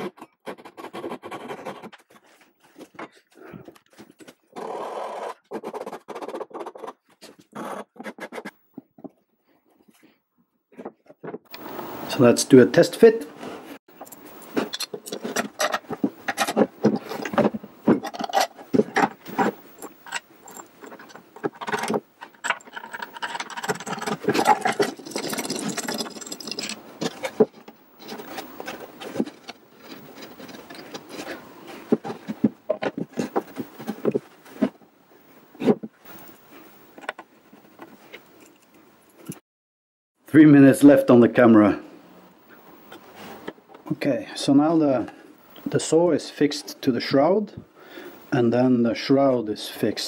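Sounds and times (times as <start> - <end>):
metal parts rattling and scraping: 13.9 - 34.8.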